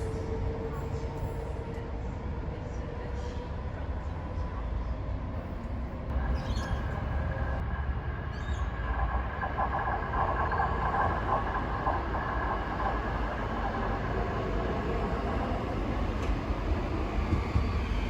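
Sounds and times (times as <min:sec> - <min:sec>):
train rumble: 0:05.4 - 0:18.0.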